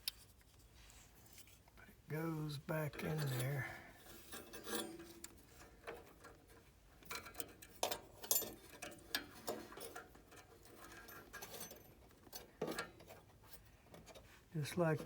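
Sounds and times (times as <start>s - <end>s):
metal parts clicking and scraping: 3.0s - 13.3s.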